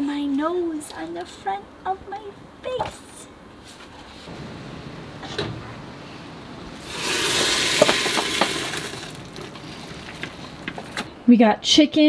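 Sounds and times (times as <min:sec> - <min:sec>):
food sizzling in a pan: 0:06.8 - 0:10.7.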